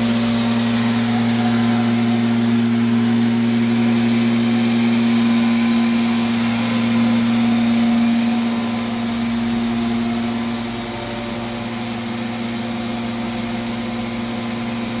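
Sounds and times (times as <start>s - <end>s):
machine hum with tones: 0.0s - 15.0s.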